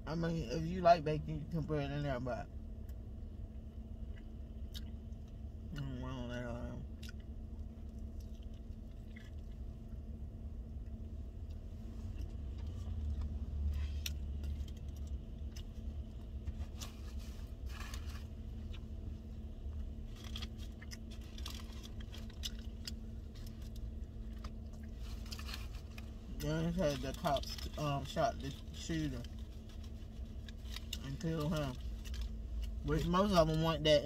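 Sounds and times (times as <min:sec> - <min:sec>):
car interior rumble and hum: 0:00.0 - 0:34.0
person chewing: 0:04.0 - 0:05.9, 0:06.8 - 0:10.0, 0:10.8 - 0:26.2.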